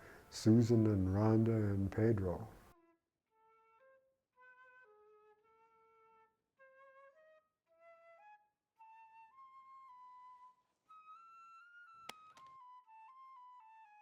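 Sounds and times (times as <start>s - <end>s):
solo flute melody: 4.5s - 14.0s.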